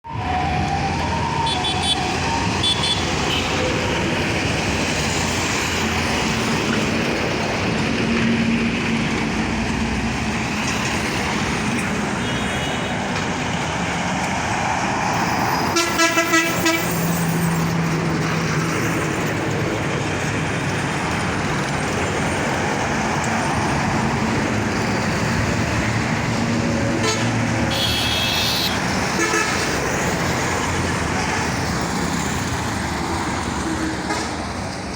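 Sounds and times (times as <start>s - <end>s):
vehicle engines and tyre noise: 0.0s - 34.9s
car horns tooting: 15.7s - 17.0s, 27.0s - 29.7s
short loud horn blasts: 15.8s - 16.9s, 27.0s - 29.6s.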